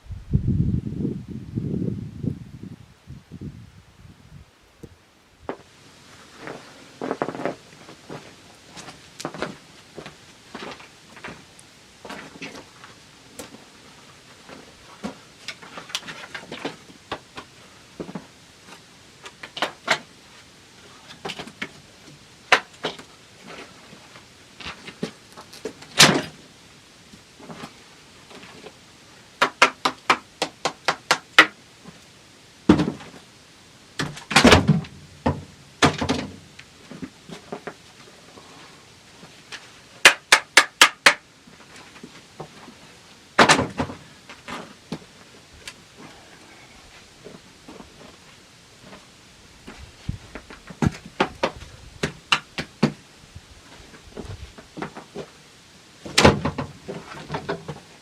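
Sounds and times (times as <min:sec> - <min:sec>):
knocks and clunks: 0:56.1 - 0:57.8.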